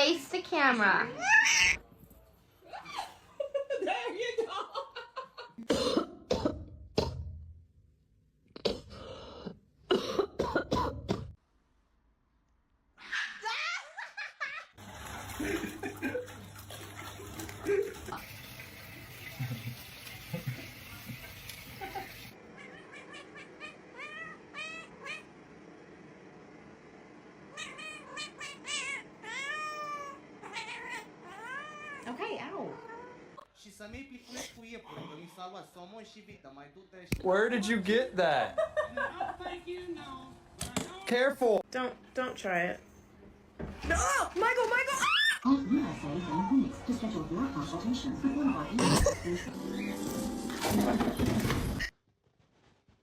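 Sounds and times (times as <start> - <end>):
cat meowing: 1.2 - 1.8, 22.5 - 25.3, 27.5 - 33.2
person coughing: 5.6 - 6.6, 9.9 - 11.4, 48.8 - 49.4.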